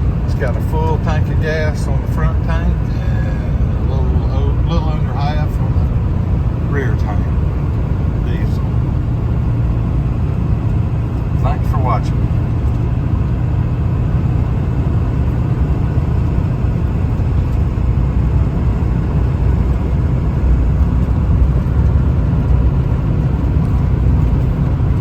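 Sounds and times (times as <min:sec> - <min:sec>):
in-cab engine rumble: 0:00.0 - 0:25.0
road noise: 0:00.0 - 0:25.0.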